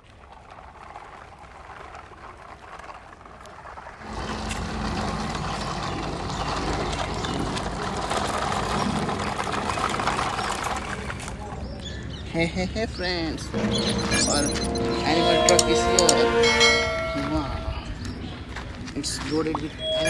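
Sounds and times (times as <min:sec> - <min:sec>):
vehicle engine droning: 0:04.0 - 0:11.7.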